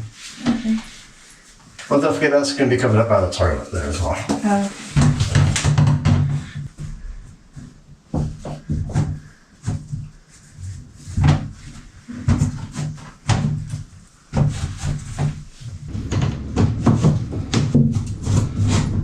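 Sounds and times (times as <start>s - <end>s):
floor planks knocking and clacking: 12.1s - 19.0s.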